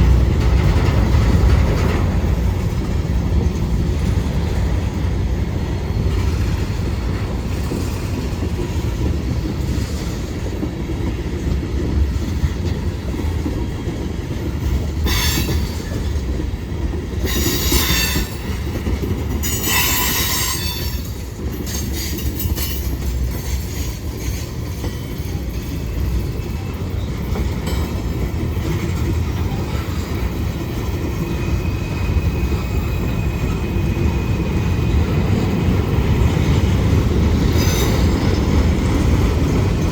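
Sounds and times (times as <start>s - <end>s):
train wheels rumbling on rail: 0.0s - 39.9s
high-pitched wheel squeal: 19.4s - 21.1s.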